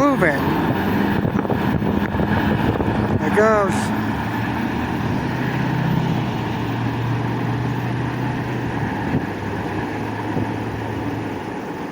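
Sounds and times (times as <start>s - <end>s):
low rumble: 0.0s - 11.6s
engine hum: 0.0s - 11.9s.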